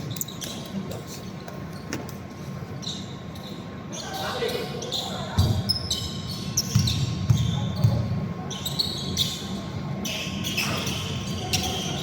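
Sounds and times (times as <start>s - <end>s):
shoe squeaks: 0.0s - 12.0s
basketball bouncing on hardwood: 6.7s - 8.1s.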